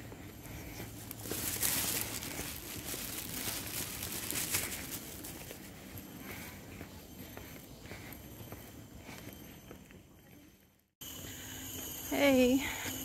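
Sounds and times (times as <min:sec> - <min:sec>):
footsteps rustling and crunching: 0:00.0 - 0:09.6.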